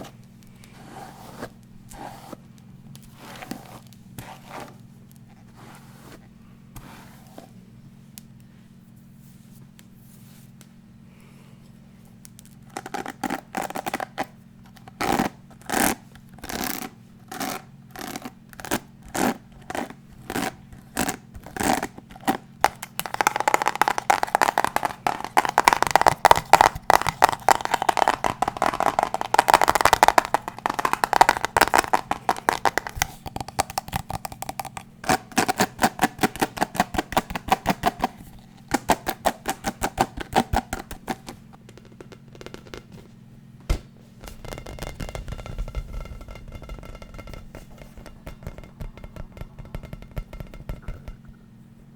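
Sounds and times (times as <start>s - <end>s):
tapping and scratching on object: 12.6s - 43.0s, 44.2s - 51.4s.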